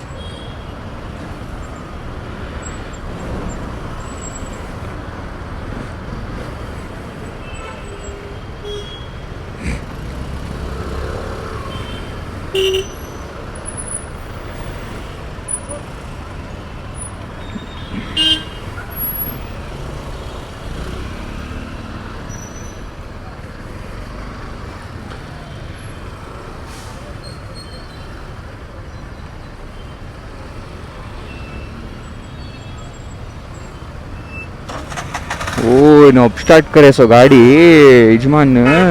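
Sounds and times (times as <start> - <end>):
road traffic rushing: 0.0 - 38.9
motorcycle riding: 0.1 - 26.6, 33.0 - 38.9
vehicle horn honk: 7.4 - 9.2, 11.7 - 13.2, 17.7 - 18.7, 38.6 - 38.9
motorcycle engine: 14.8 - 22.2, 33.8 - 36.8.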